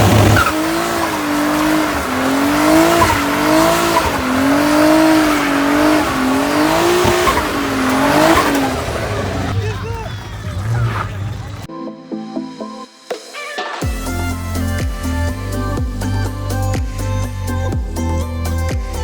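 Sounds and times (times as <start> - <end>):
car engine at high revs: 0.0 - 11.7
tyres squealing: 0.0 - 11.7.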